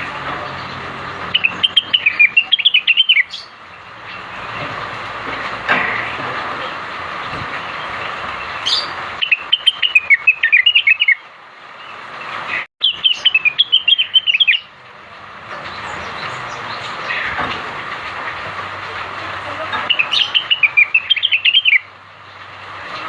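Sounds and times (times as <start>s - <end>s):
bird singing rapid chattering notes: 0.4s - 4.6s, 7.3s - 11.2s, 12.8s - 14.8s, 19.8s - 22.4s.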